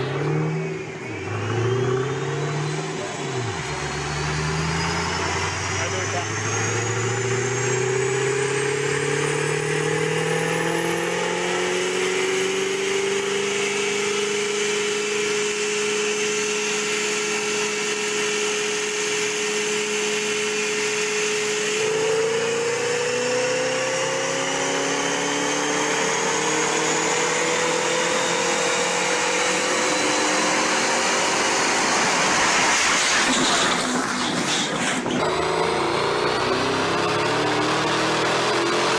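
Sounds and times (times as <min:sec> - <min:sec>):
road noise: 0:00.0 - 0:11.2
vehicle engine whine: 0:00.0 - 0:38.9.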